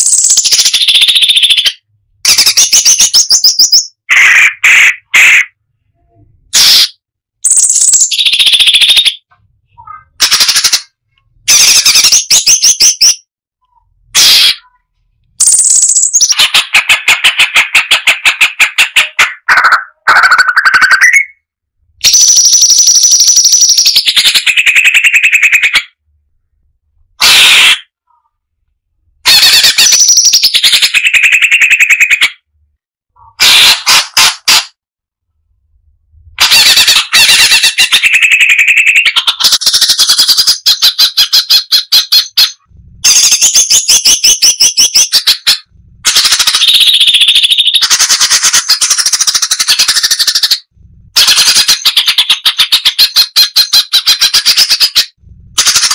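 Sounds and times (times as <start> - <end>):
bird singing: 0.0 - 4.1, 6.6 - 10.9, 11.5 - 18.5, 19.2 - 26.0, 29.7 - 32.3.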